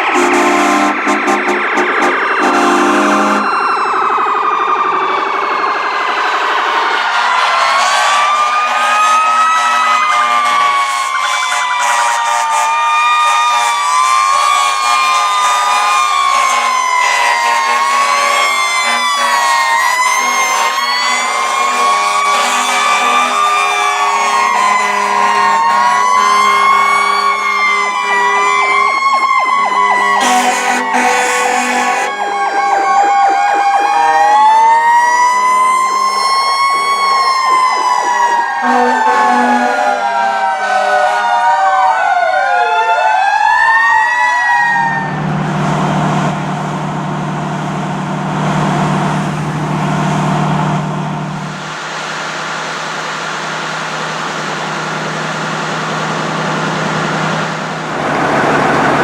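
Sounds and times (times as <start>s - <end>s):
fire truck sirens wailing: 0.0s - 59.0s
steady low drone: 44.8s - 51.8s.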